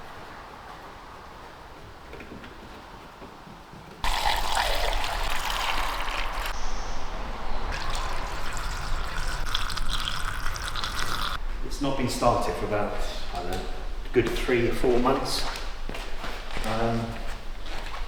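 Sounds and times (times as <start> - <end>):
petrol pouring into fuel tank: 4.0 - 6.5, 7.7 - 11.4.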